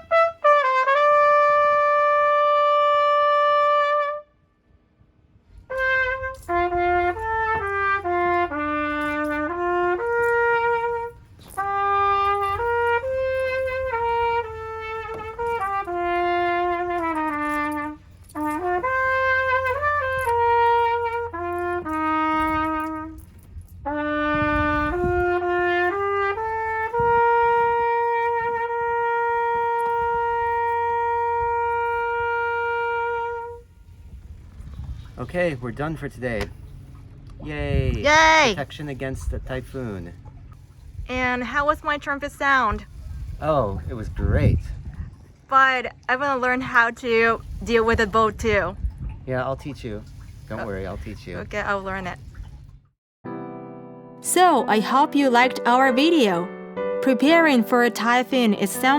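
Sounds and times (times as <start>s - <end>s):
solo trumpet melody: 0.0s - 4.5s, 5.5s - 34.4s, 53.4s - 58.9s.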